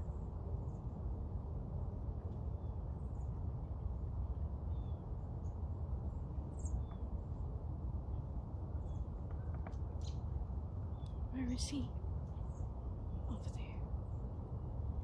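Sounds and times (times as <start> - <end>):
low outdoor rumble: 0.0 - 15.0
faint high bird chirps: 4.6 - 5.6, 6.4 - 7.4, 10.9 - 13.9.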